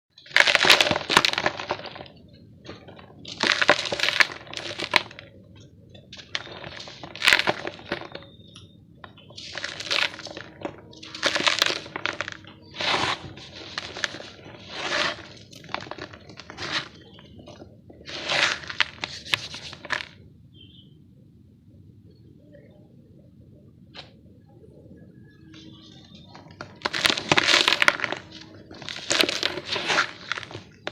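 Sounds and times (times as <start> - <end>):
dry dirt crunching: 26.6 - 30.9.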